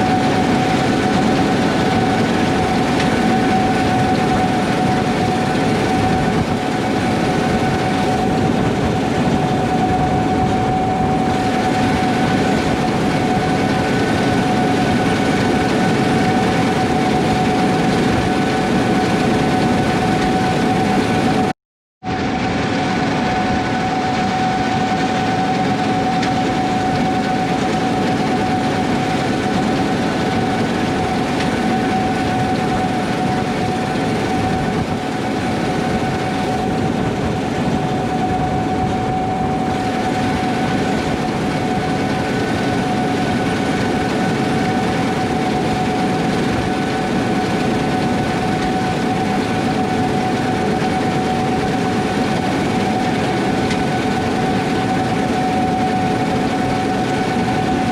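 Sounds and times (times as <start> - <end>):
combine harvester rumble and clatter: 0.0 - 57.9
steady machine whine: 0.0 - 57.9.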